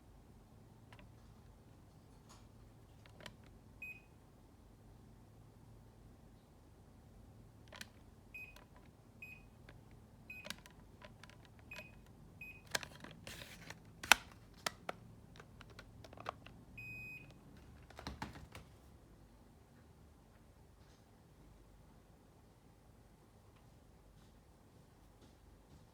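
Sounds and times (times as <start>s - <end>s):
remote control buttons clicking: 9.6s - 18.4s.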